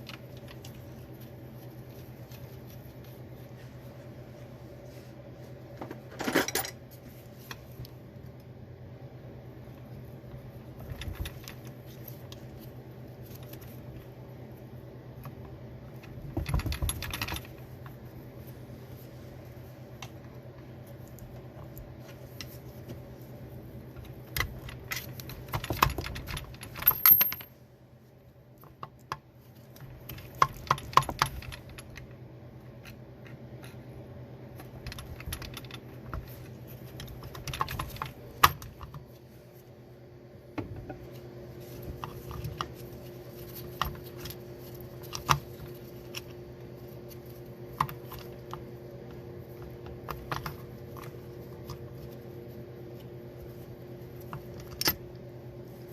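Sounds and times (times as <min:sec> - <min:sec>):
steady low hum: 0:00.0 - 0:55.9
small metal parts clicking: 0:24.9 - 0:27.5.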